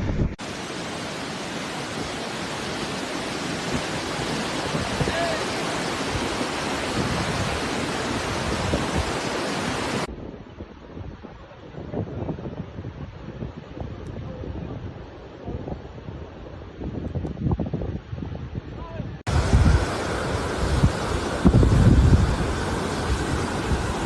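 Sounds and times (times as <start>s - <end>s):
gusty wind on microphone: 0.0s - 24.0s
floodwater rushing: 0.4s - 10.1s, 19.3s - 24.0s.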